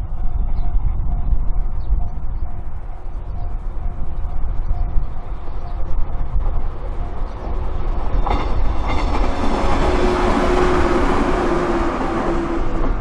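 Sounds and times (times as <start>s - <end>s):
train running noise: 0.0s - 13.0s
train wheels clicking over rail joints: 4.7s - 13.0s
train motor hum: 5.2s - 13.0s.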